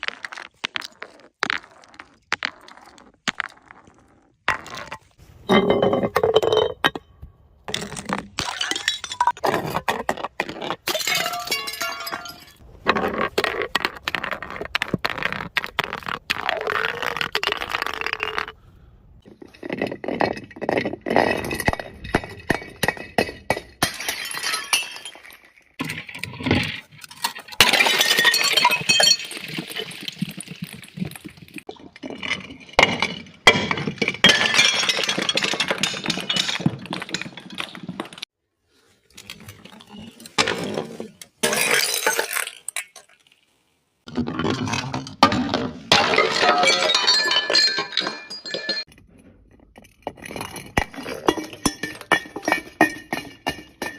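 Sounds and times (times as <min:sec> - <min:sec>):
glass bottles breaking: 0:07.7 - 0:09.6, 0:10.8 - 0:12.6, 0:19.6 - 0:38.2, 0:41.4 - 0:43.2, 0:44.2 - 0:49.0, 0:49.8 - 0:53.9.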